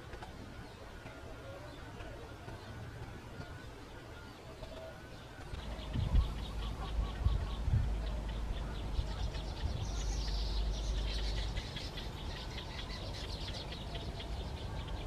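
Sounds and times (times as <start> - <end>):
steady low rumble: 5.1 - 15.0.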